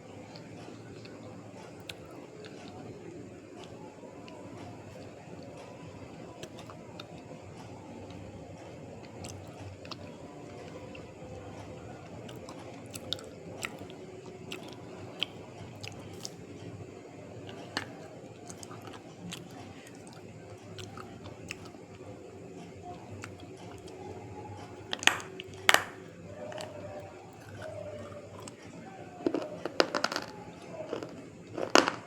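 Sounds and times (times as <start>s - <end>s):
person chewing brittle food crunching: 0.2s - 2.8s, 9.1s - 11.1s, 12.1s - 16.7s, 17.5s - 24.0s, 24.6s - 32.0s.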